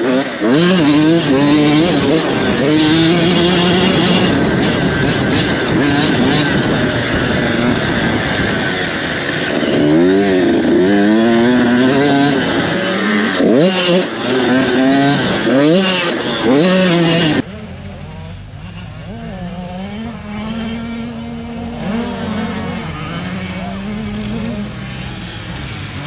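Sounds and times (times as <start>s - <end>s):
dirt bike engines revving: 0.0s - 26.0s.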